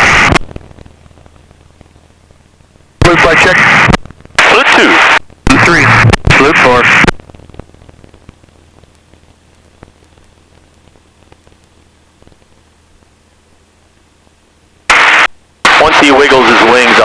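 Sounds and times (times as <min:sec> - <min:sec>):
radio static hiss: 0:00.0 - 0:17.0
steady low hum: 0:00.0 - 0:17.0
small crackles: 0:00.3 - 0:02.9, 0:06.2 - 0:15.5.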